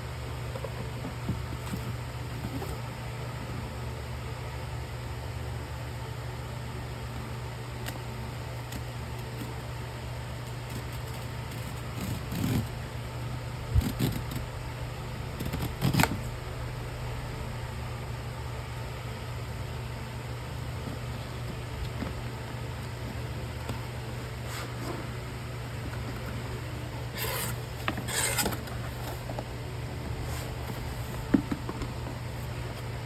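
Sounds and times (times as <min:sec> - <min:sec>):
steady low hum: 0:00.0 - 0:33.0
clicks and rustles of handling: 0:07.8 - 0:12.7.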